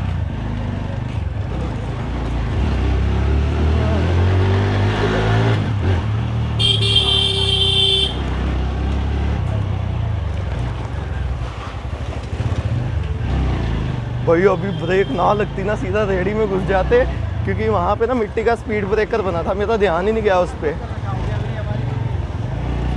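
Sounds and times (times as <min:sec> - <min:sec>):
motorcycle horn: 0:06.6 - 0:08.3.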